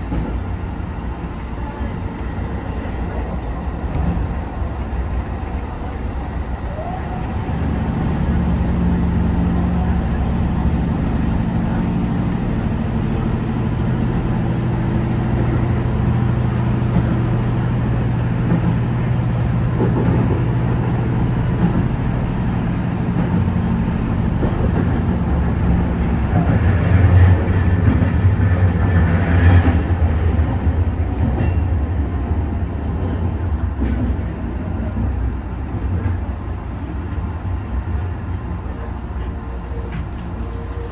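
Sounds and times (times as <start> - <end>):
train drive hum: 0.0 - 40.9
train running noise on rails: 0.0 - 40.9.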